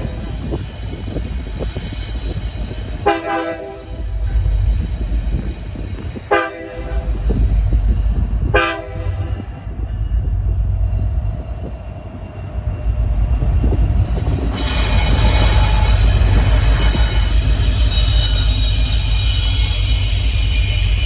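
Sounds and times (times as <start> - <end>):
steel wheels squealing on rails: 0.0 - 21.0
train rumbling: 0.0 - 21.0
locomotive horn blasts: 3.0 - 4.0, 6.3 - 7.1, 8.5 - 9.4.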